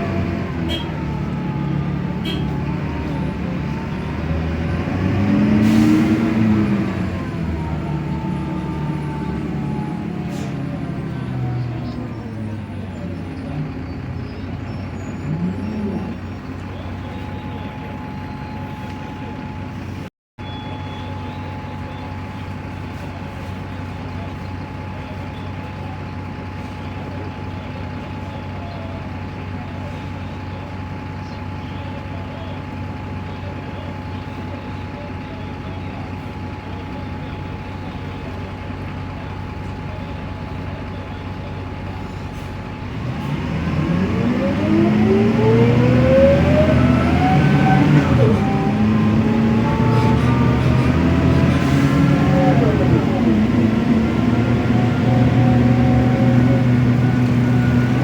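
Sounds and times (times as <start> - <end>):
bus diesel engine idling: 0.0 - 58.0.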